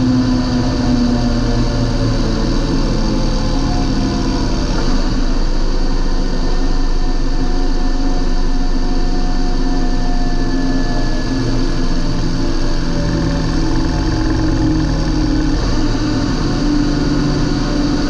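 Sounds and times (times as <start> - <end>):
tractor diesel engine running: 10.3 - 18.0.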